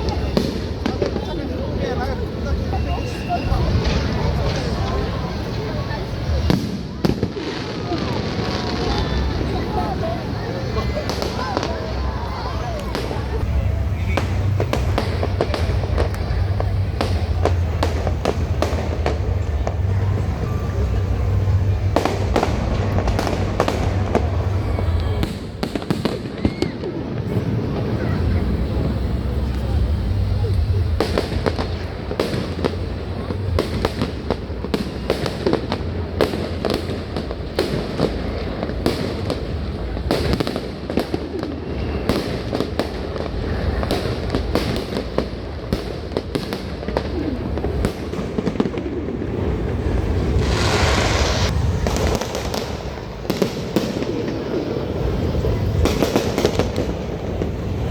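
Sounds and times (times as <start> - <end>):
fireworks cracking and popping: 0.0 - 57.9
low rumble: 12.8 - 25.3, 49.2 - 53.3.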